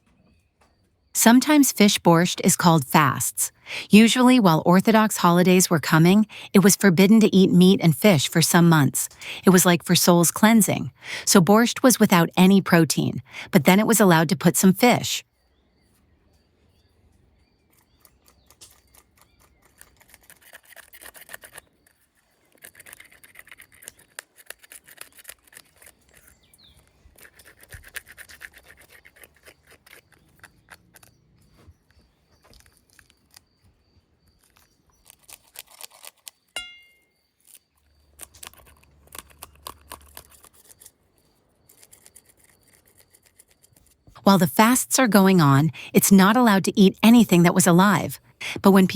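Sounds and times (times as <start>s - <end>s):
short metallic ring: 36.6s - 37.0s.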